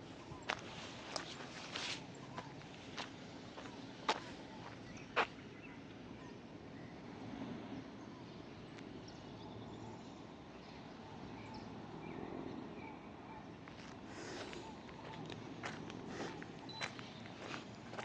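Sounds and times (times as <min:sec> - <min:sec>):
street ambience hiss: 0:00.0 - 0:18.0
faint bird chirps: 0:14.2 - 0:18.0.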